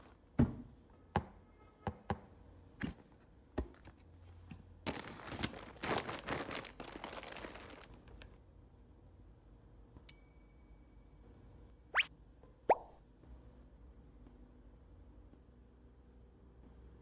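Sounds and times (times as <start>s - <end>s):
wrapping tearing and crinkling: 4.8s - 8.4s.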